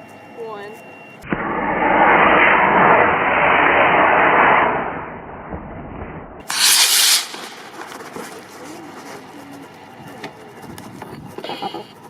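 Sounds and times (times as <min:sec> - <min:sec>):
rocket motor rushing hiss: 0:06.4 - 0:08.1.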